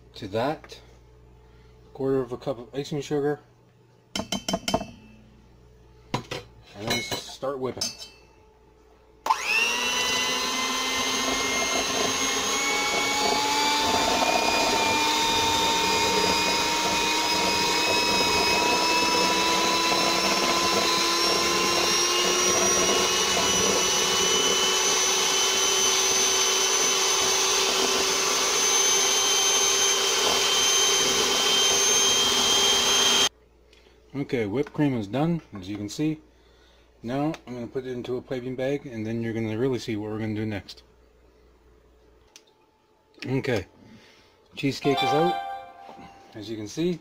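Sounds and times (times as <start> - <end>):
electric mixer whining: 9.3 - 33.3.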